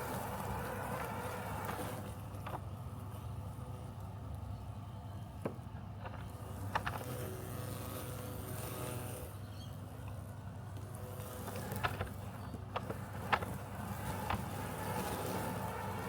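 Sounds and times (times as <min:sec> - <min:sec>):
robotic lawn mower humming: 0:10.3 - 0:16.0.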